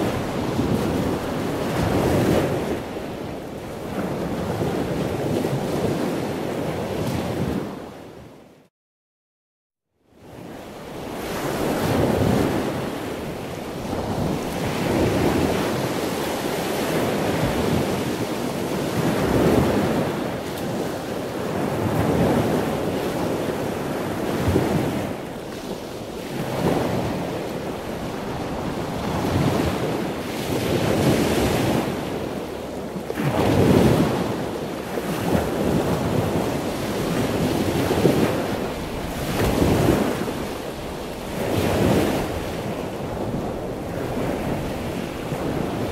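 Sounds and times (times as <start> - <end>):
ocean waves washing up: 0.0 - 7.8, 10.8 - 45.9.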